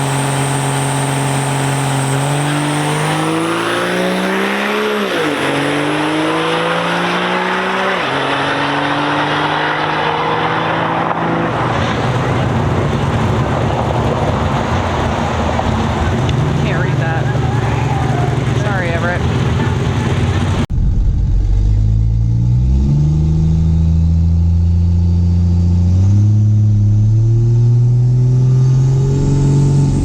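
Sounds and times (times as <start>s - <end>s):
engine accelerating through gears: 0.0s - 30.0s
loud rushing noise: 9.6s - 24.6s.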